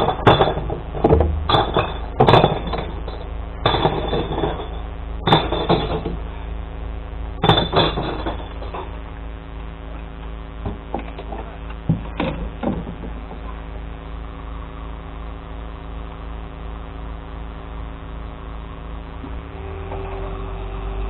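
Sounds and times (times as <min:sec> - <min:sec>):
sharp metal clanks and knocks: 0:00.0 - 0:06.2, 0:07.4 - 0:09.0.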